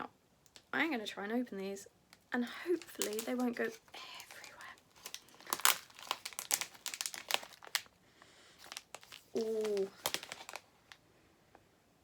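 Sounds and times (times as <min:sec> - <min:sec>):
packet tearing and crinkling: 0:02.7 - 0:08.0, 0:08.6 - 0:11.0.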